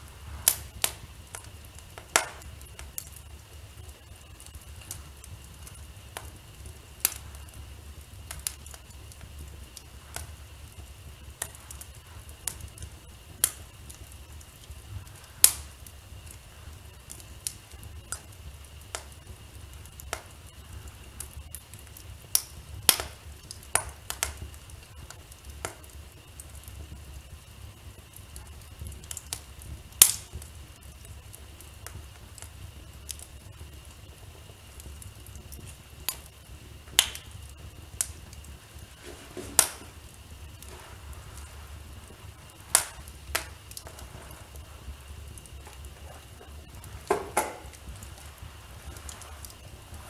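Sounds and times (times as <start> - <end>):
low steady rumble: 0.0 - 23.6, 29.6 - 50.0
wood fire crackling: 0.0 - 50.0.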